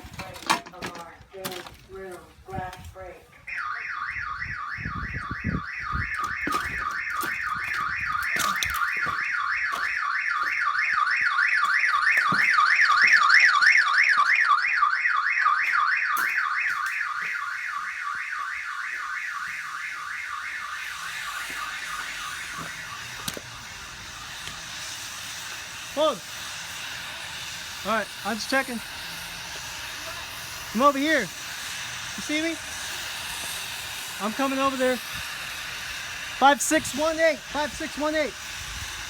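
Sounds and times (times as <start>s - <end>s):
alarm siren warbling: 3.2s - 28.9s.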